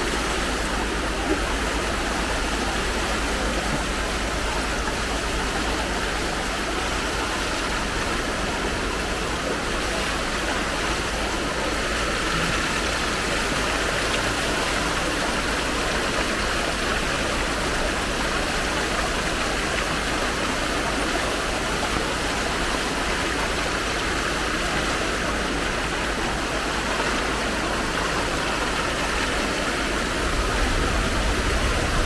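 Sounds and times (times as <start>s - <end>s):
rushing floodwater: 0.0s - 32.0s.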